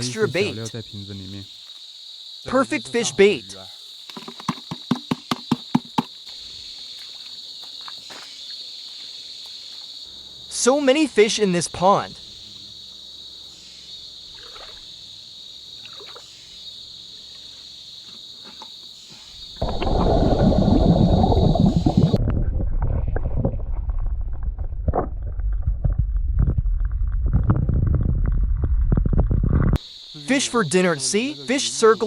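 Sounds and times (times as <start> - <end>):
insects chirping: 0.0 - 22.4, 27.1 - 32.0
water sloshing and gurgling: 14.3 - 15.0, 15.8 - 16.4, 19.4 - 28.4.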